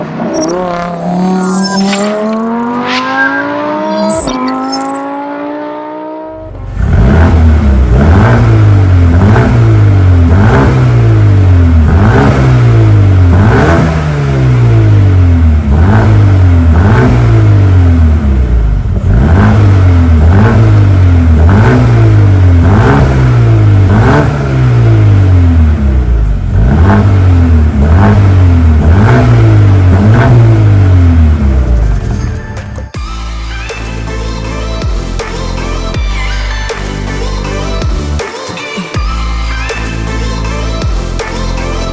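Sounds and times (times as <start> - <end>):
car engine revving: 0.0 - 32.2.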